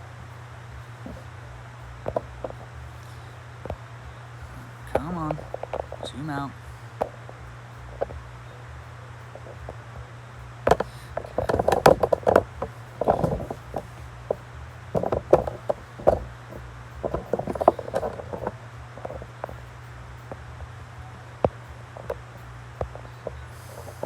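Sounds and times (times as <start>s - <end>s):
low hum: 0.0s - 24.0s
hardware clicking and knocking: 10.7s - 19.6s.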